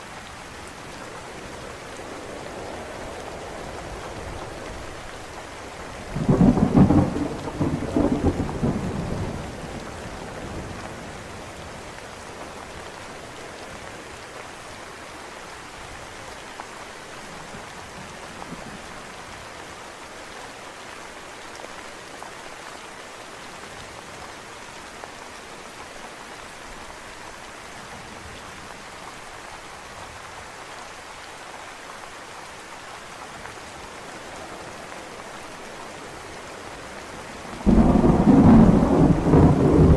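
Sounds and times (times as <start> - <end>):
steady rain falling: 0.0 - 39.9
thunder rumbling: 6.1 - 9.5, 37.6 - 39.9.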